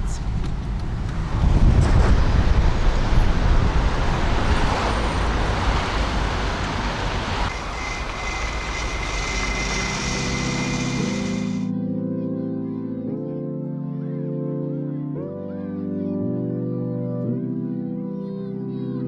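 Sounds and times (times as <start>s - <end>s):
car driving away: 0.6s - 11.7s
background music: 9.0s - 19.0s.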